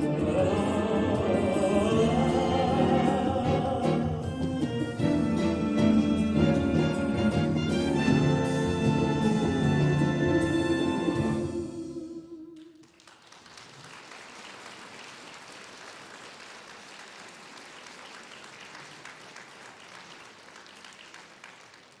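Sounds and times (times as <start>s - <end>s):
brass band chord: 1.2s - 12.0s
audience applauding: 12.6s - 22.0s.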